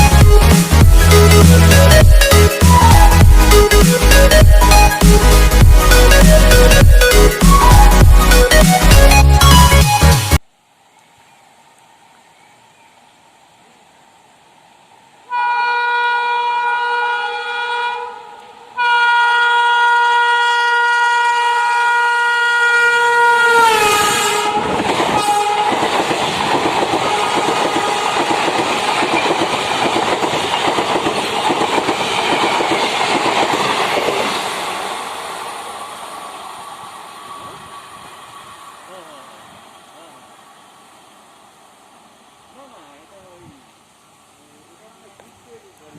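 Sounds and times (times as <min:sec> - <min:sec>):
locomotive horn blasts: 0:15.3 - 0:25.7
train rushing and clattering past: 0:24.0 - 0:42.9.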